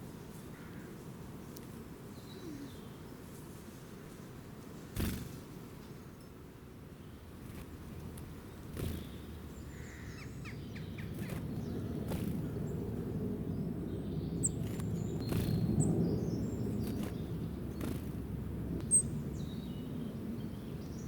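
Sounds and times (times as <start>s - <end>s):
small birds chirping: 7.0s - 21.0s
low outdoor rumble: 7.2s - 21.0s.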